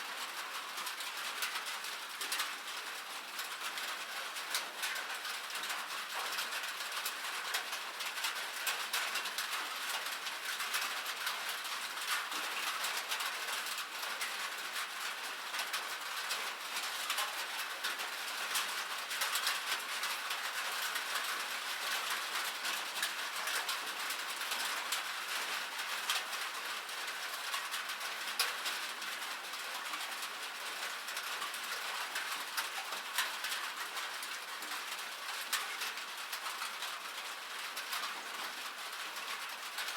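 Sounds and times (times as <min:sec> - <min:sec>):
rain pattering on a roof: 0:00.0 - 0:39.9.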